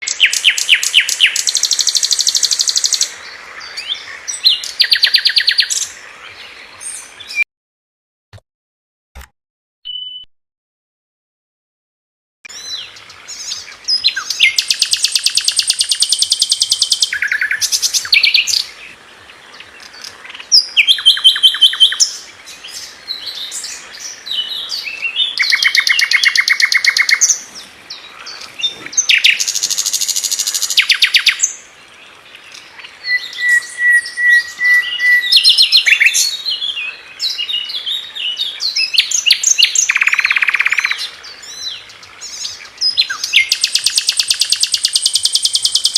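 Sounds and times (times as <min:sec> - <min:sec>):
high bird chirps: 0:09.8 - 0:10.3, 0:12.5 - 0:18.7, 0:23.4 - 0:31.5, 0:32.8 - 0:36.6, 0:38.7 - 0:41.0, 0:42.4 - 0:45.9.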